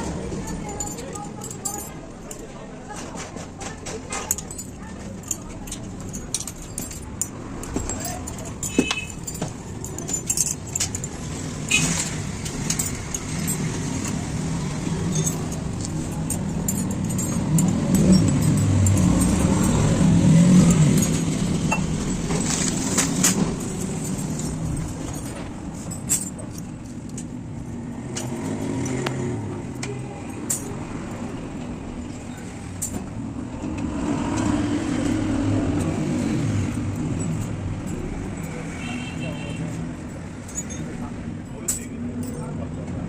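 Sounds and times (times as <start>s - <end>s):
metallic clinks and taps: 0.4s - 33.8s, 34.4s - 43.0s.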